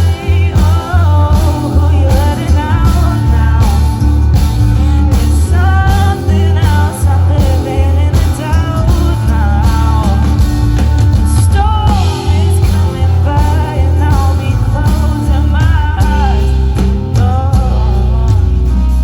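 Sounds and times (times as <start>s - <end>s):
heavy bass line: 0.0s - 19.0s
person singing: 0.0s - 19.0s
steady drum beat: 0.0s - 19.0s.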